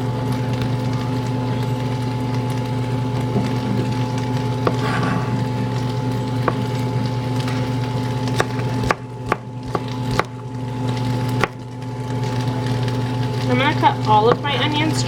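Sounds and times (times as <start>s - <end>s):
steady background hum: 0.0s - 15.0s
knife chopping on cutting board: 4.6s - 4.9s, 6.4s - 6.7s, 8.3s - 10.4s, 11.4s - 11.6s.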